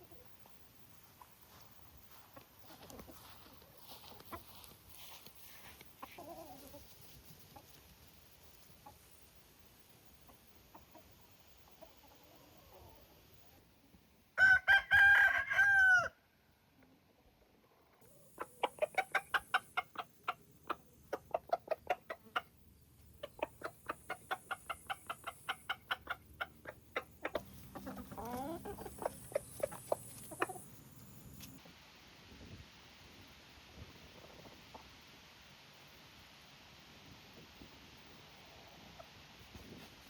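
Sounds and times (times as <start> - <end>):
hens clucking: 0.0 - 7.9, 10.0 - 13.2, 18.0 - 31.6
rooster crowing: 14.4 - 16.2.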